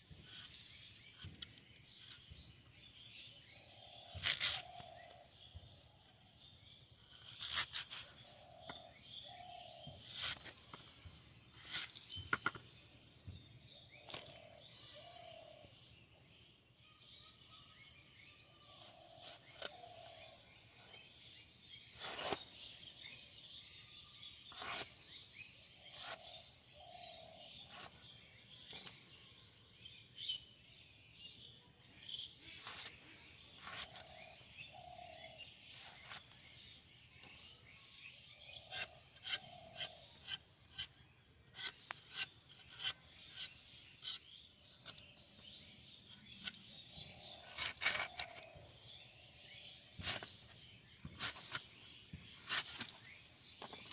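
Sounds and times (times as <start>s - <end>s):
blade scraping vegetables: 0.2s - 2.3s, 4.1s - 5.0s, 7.0s - 8.6s, 10.0s - 10.7s, 11.5s - 12.1s, 21.9s - 22.9s, 24.4s - 25.2s, 25.8s - 26.4s, 32.6s - 34.3s, 38.7s - 45.2s, 46.2s - 48.6s, 49.9s - 53.2s.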